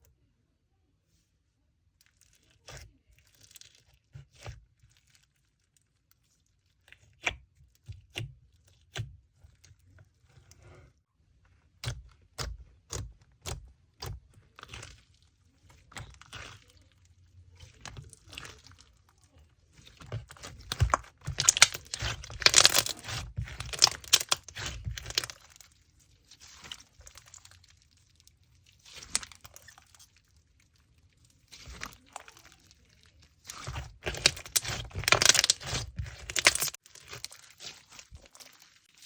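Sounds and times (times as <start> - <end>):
slime clicking and crackling: 11.7 - 39.0.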